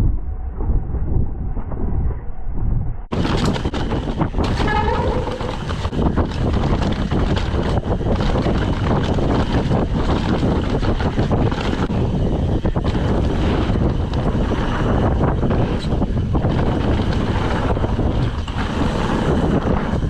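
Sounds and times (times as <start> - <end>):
mountain bike rumbling and rattling: 0.0 - 20.0
wind on microphone: 0.0 - 20.0
wavering squeal: 4.4 - 5.8.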